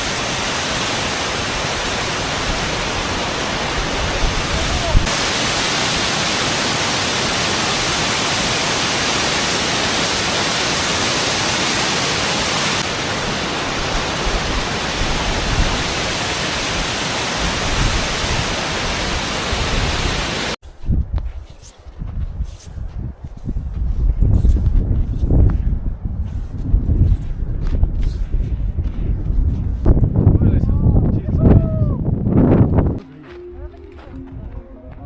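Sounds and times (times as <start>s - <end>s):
waterfall roaring: 0.0s - 20.6s.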